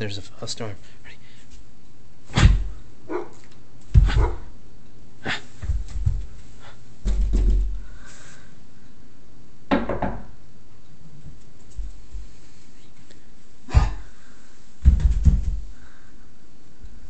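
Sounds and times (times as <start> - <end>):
dog barking: 3.1 - 3.4, 4.0 - 4.5.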